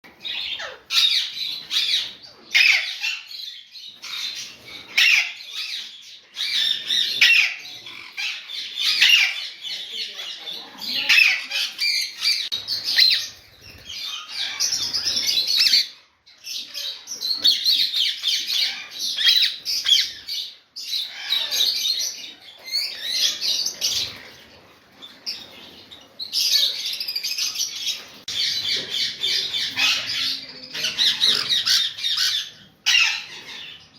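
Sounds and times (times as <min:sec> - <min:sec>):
parrots chattering and squawking: 0:00.0 - 0:33.9.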